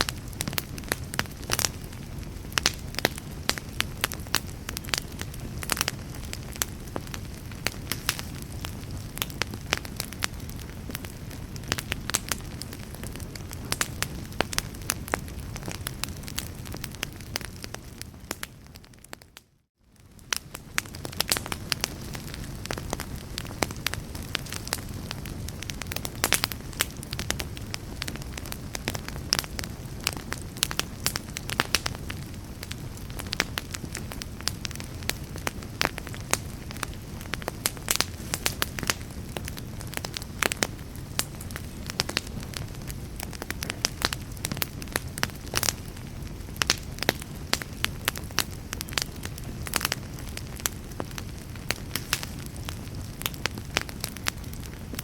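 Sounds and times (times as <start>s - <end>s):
fireplace fire crackling: 0.0s - 55.0s.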